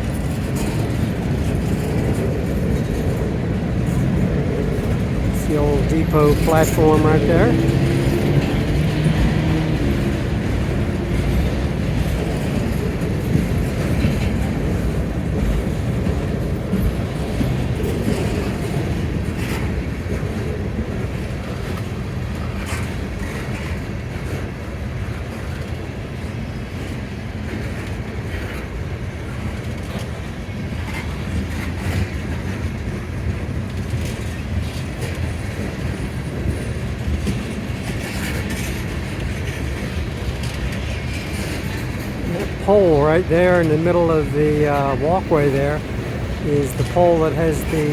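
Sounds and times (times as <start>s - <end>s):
freight train rumbling past: 0.0s - 47.9s
wheels clicking over rail joints: 30.8s - 42.6s.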